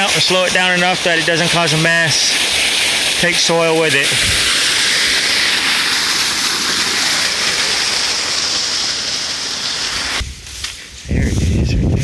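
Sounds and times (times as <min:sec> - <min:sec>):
water rushing over rocks: 0:00.0 - 0:10.3.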